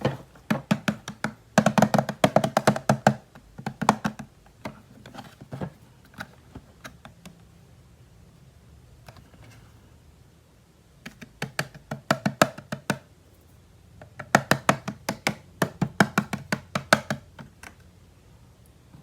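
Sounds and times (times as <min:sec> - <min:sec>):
taps on plastic toy parts: 0:00.4 - 0:07.4, 0:11.0 - 0:13.1, 0:14.0 - 0:17.8.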